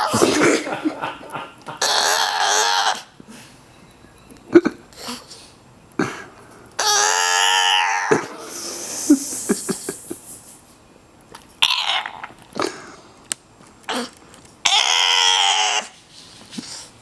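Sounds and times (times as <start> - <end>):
dog vocalizing: 0.0 - 3.2.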